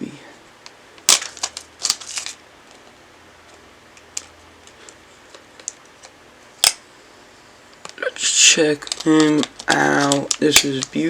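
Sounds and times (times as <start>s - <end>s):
trading card pack clicks and taps: 8.8s - 11.0s.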